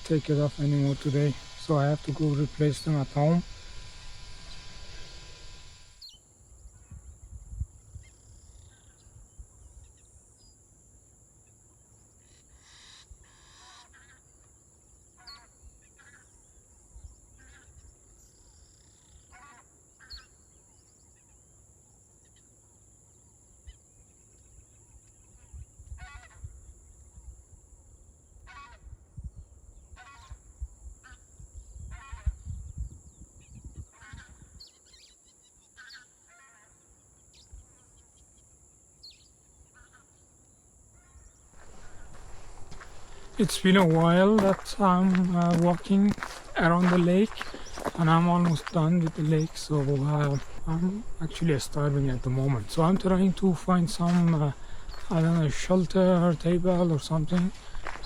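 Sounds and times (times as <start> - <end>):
geese honking: 0.0 - 5.9, 41.6 - 58.0.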